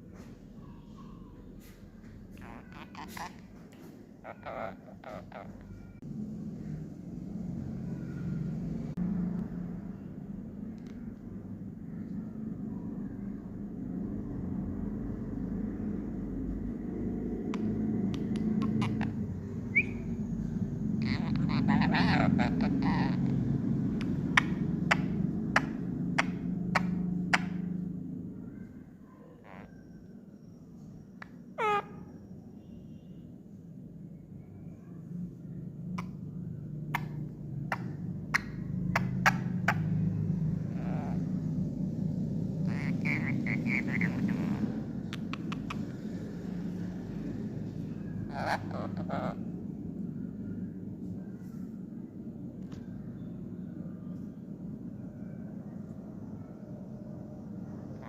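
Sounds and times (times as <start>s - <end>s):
steady low hum: 0.0s - 58.0s
parrot harsh squawk: 2.4s - 3.4s, 4.2s - 5.8s, 18.6s - 20.0s, 21.0s - 23.5s, 31.6s - 32.1s, 40.7s - 41.2s, 42.6s - 45.8s, 48.2s - 49.5s
parrot rising chirp: 2.4s - 3.4s, 4.2s - 5.9s, 18.2s - 27.7s, 31.6s - 32.2s, 36.9s - 46.2s, 48.2s - 49.5s.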